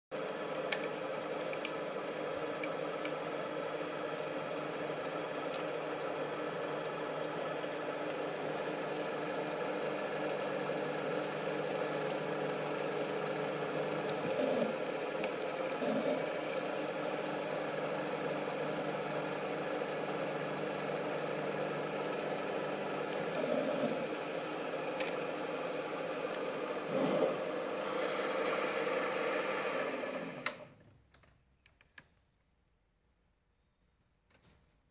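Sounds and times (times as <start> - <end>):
lathe motor and gear whine: 0.2 - 30.7.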